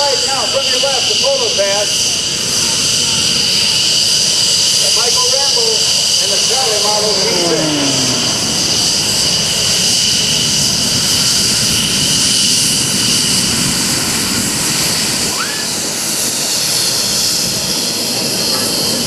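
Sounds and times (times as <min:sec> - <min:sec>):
high jet whine: 0:00.0 - 0:12.1
jet engines running: 0:00.0 - 0:19.0.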